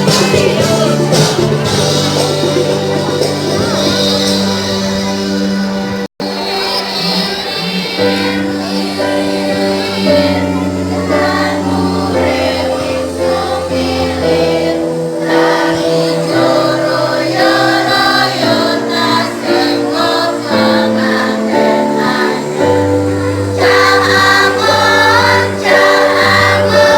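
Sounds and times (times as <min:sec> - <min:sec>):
children's choir singing: 0:00.0 - 0:26.9
low instrumental accompaniment: 0:00.0 - 0:26.9.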